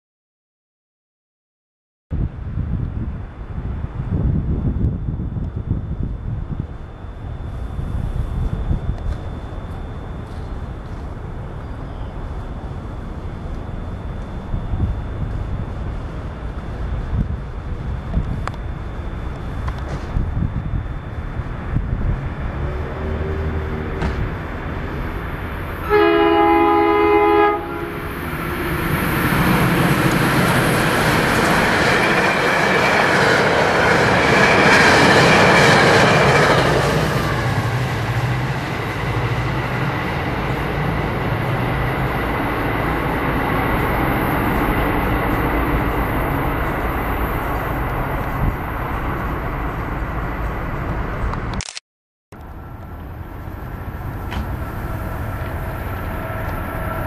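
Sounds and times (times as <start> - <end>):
train passing with rumble: 2.2 - 51.6, 52.4 - 57.0
train horn blast: 25.8 - 28.2.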